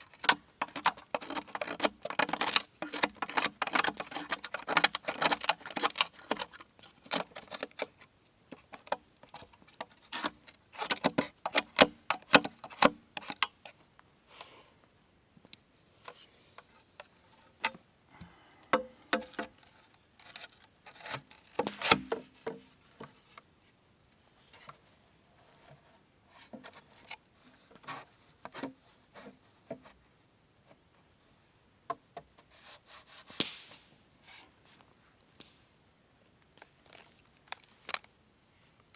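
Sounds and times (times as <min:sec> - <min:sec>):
bamboo clicking and knocking: 0:00.0 - 0:13.8, 0:18.6 - 0:23.5, 0:33.3 - 0:33.9.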